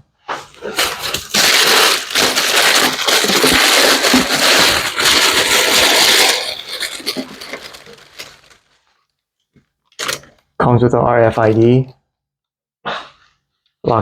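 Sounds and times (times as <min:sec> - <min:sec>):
paper packaging crinkling: 0:00.5 - 0:08.9.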